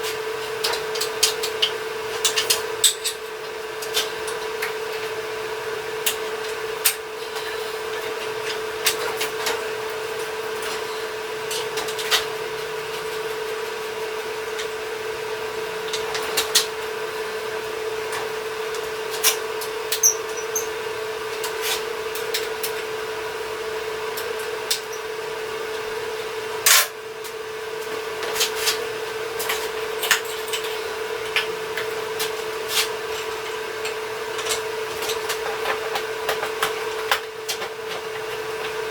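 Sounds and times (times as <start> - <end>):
steady mechanical hum: 0.0 - 38.9
clanks and taps of metal parts: 0.6 - 3.2, 19.2 - 20.7.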